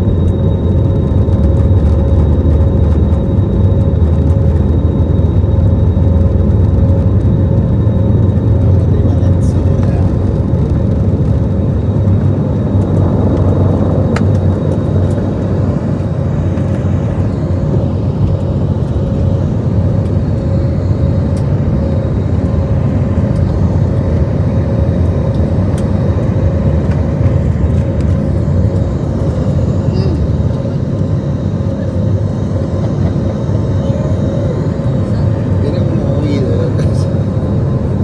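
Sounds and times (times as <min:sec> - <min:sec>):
jet engines roaring: 0:00.0 - 0:38.0.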